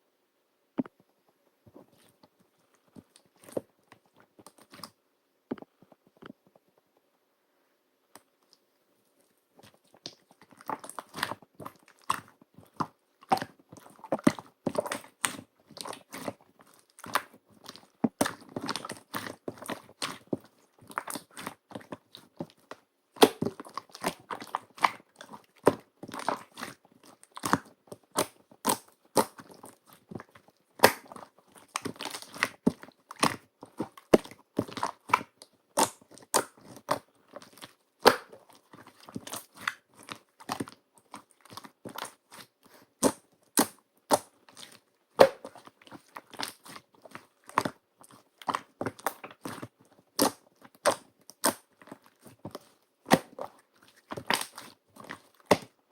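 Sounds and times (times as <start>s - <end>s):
slime clicking and popping: 30.8s - 38.5s, 41.5s - 46.8s, 48.4s - 51.6s.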